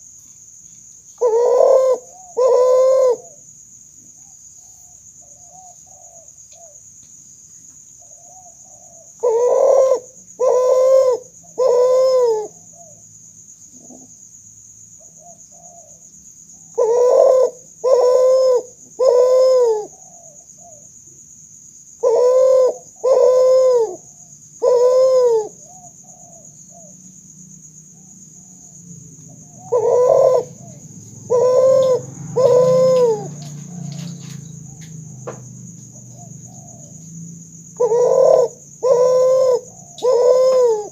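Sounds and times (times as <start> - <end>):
dove cooing: 1.2 - 3.4, 4.6 - 6.8, 8.0 - 13.0, 15.1 - 16.0, 16.6 - 20.9, 22.0 - 27.0, 28.0 - 37.0, 37.7 - 40.9.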